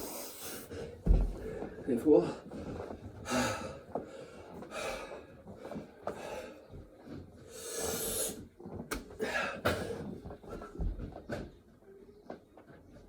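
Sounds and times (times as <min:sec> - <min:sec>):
man breathing hard: 0:00.0 - 0:06.8, 0:07.4 - 0:08.4, 0:09.1 - 0:10.2.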